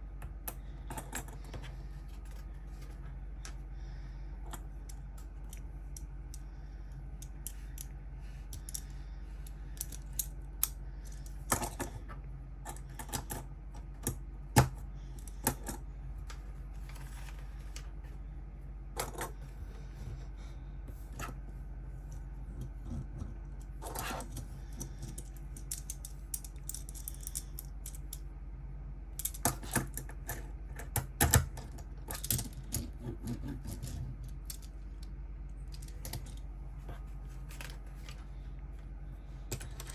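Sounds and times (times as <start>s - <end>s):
steady low hum: 0.0s - 39.9s
plastic pieces clicking and clattering: 23.8s - 28.2s.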